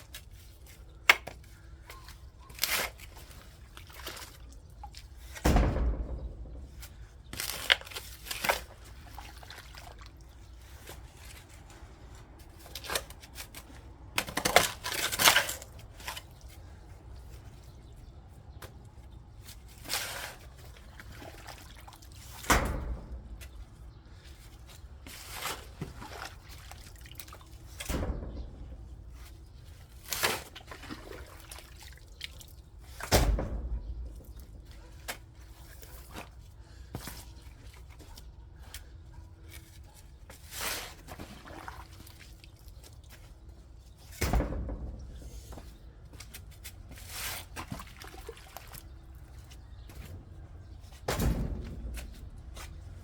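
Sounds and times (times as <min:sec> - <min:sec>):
thuds in soil: 0:05.2 - 0:08.8.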